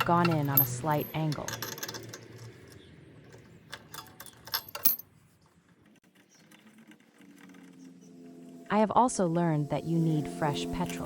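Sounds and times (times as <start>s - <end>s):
metal tools clinking: 0.0s - 5.1s.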